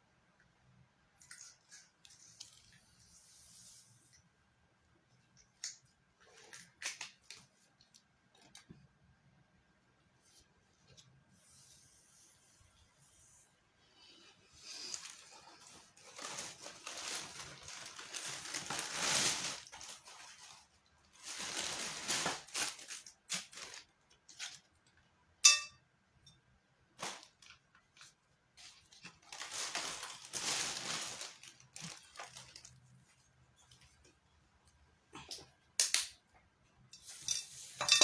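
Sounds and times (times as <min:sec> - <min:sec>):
crackly crunching: 0:14.9 - 0:24.8, 0:27.0 - 0:33.0.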